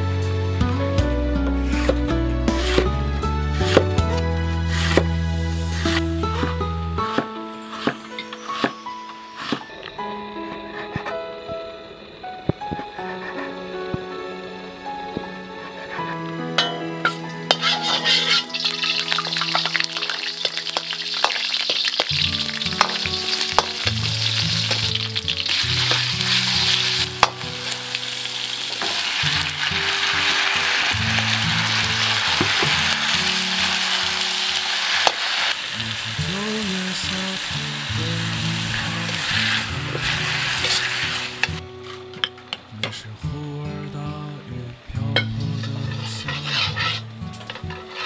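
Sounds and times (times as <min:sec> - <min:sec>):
soft background music: 0:00.0 - 0:48.0
spatula scraping a pan: 0:01.6 - 0:09.7, 0:15.7 - 0:35.6, 0:38.3 - 0:42.0, 0:45.4 - 0:48.0
food sizzling in a pan: 0:01.7 - 0:02.8, 0:07.1 - 0:09.7, 0:17.0 - 0:42.1, 0:45.4 - 0:48.0.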